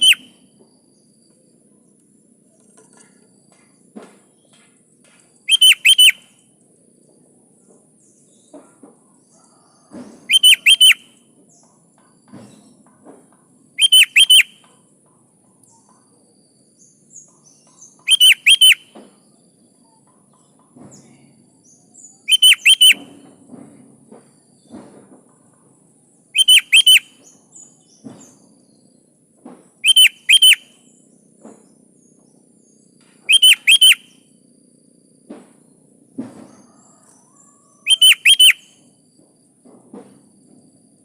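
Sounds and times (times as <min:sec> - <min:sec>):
bird whistled calls: 0:00.0 - 0:00.5, 0:05.4 - 0:06.5, 0:09.4 - 0:11.3, 0:13.8 - 0:14.8, 0:17.8 - 0:19.2, 0:22.0 - 0:23.3, 0:26.3 - 0:28.4, 0:29.8 - 0:31.0, 0:33.2 - 0:34.3, 0:36.6 - 0:38.9.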